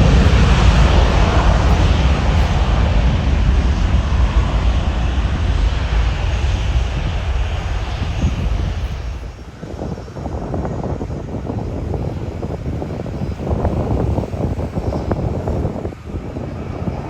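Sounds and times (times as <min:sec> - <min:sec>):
jet airliner passing overhead: 0:00.0 - 0:17.0
wind noise: 0:00.0 - 0:17.0.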